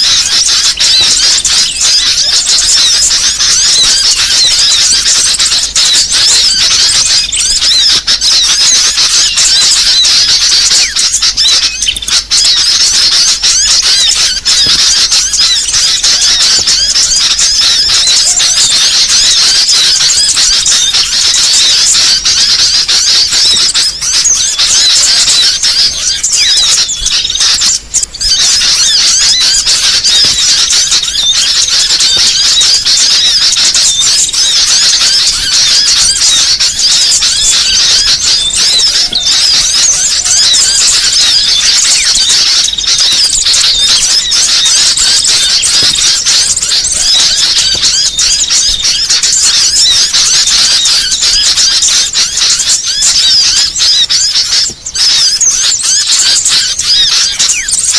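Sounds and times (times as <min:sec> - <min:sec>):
many small birds chirping: 0:00.0 - 0:57.9.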